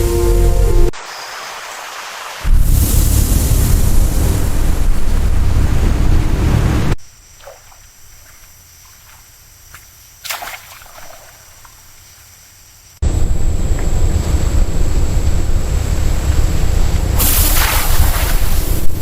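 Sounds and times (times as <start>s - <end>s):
loud steady rushing noise: 13.0s - 19.0s.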